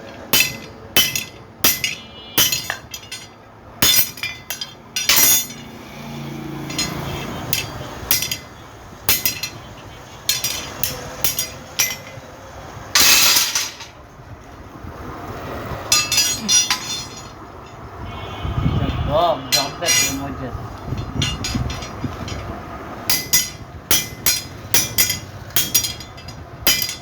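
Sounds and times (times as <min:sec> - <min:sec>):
ringing clinks and knocks: 0:00.0 - 0:05.8, 0:06.6 - 0:12.3, 0:15.9 - 0:17.9, 0:19.5 - 0:27.0.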